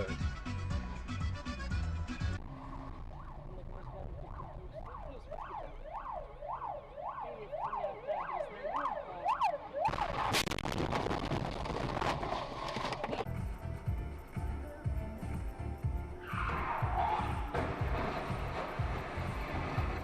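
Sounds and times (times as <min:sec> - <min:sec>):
emergency siren yelping: 0:02.9 - 0:10.4.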